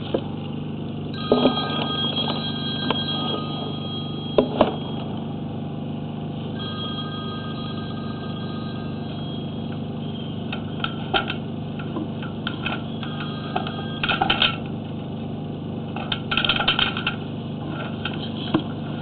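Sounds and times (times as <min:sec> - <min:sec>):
steady low hum: 0:00.0 - 0:19.0
clattering clicks of cable: 0:13.6 - 0:14.6.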